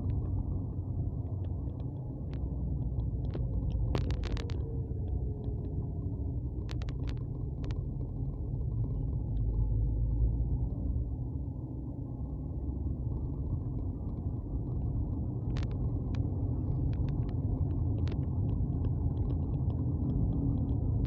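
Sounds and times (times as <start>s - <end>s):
road vehicle rumble: 0.0s - 21.0s
small sharp clicks: 1.4s - 5.8s, 6.6s - 7.8s.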